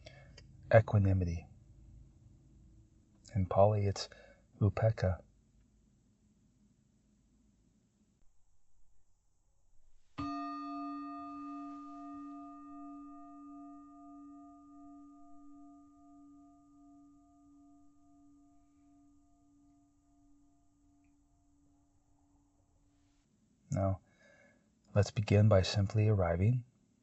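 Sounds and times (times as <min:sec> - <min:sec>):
singing bowl ringing: 0:10.2 - 0:21.9.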